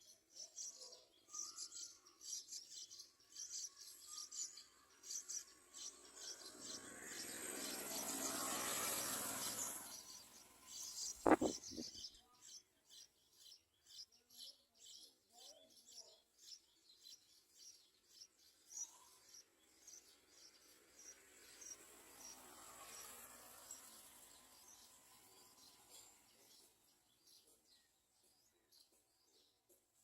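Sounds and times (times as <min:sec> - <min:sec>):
bird chicks chirping: 0:09.4 - 0:14.1
sharp knock: 0:11.2 - 0:11.9.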